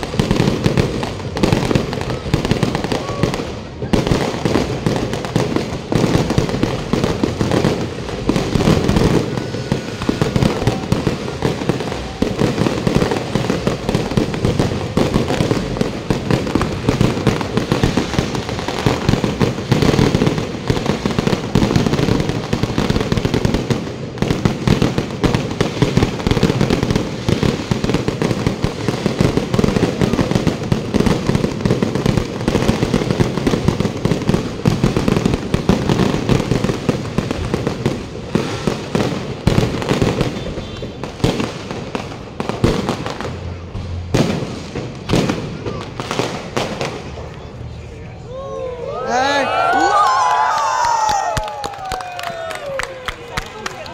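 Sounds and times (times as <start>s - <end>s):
fireworks bangs and crackles: 0.0s - 53.9s.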